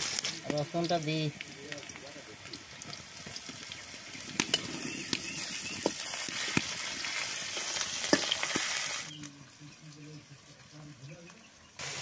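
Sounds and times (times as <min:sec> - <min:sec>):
onions sizzling in hot oil: 0:00.0 - 0:12.0
metal spatula scraping wok: 0:04.5 - 0:09.1.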